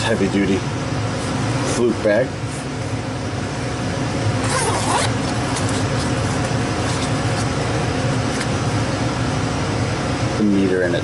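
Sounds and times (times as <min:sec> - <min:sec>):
steady low hum: 0:00.0 - 0:11.0
bag zipper opening: 0:04.4 - 0:07.5.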